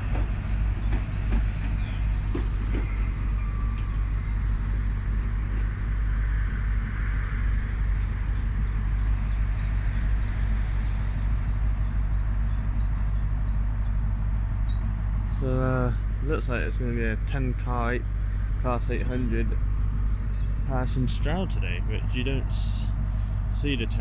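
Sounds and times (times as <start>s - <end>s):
train engines idling hum: 0.0s - 24.0s
small bird chirping: 7.5s - 14.9s, 19.2s - 24.0s.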